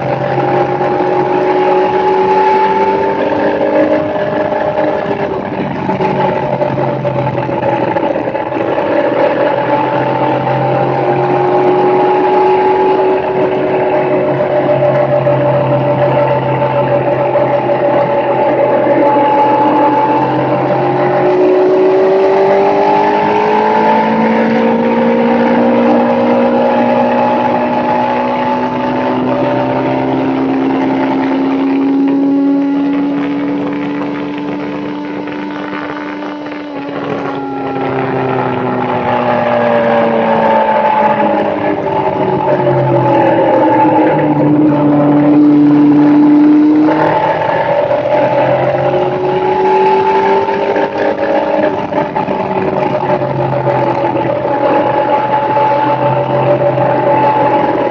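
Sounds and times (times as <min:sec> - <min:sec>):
motorbike engine running: 0:00.0 - 0:57.9.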